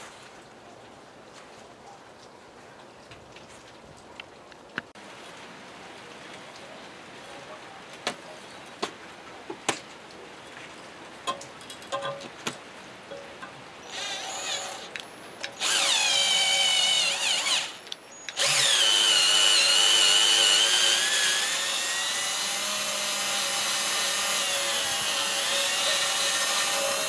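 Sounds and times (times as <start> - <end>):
electric power tool motor whine: 15.6 - 27.0.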